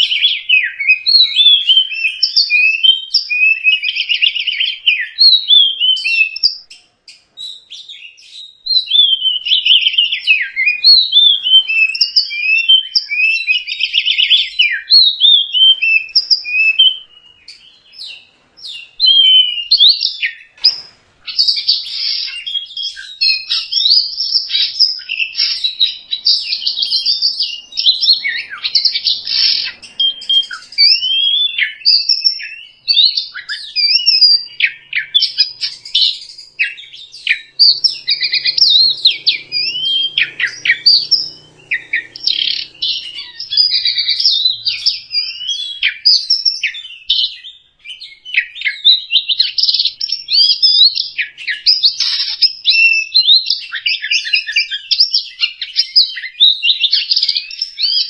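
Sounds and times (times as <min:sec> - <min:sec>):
bird singing varied whistles: 0:00.0 - 0:58.0.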